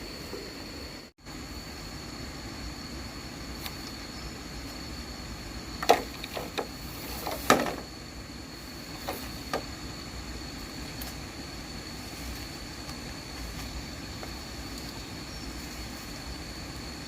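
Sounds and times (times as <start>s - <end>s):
sharp wooden knocks: 5.8s - 7.9s.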